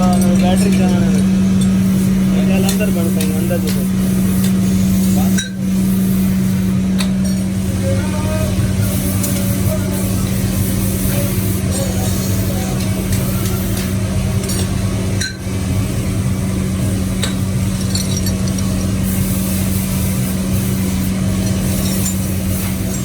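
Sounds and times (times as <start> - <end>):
workshop machine humming: 0.0 - 23.0
light metallic clinks: 17.8 - 18.9.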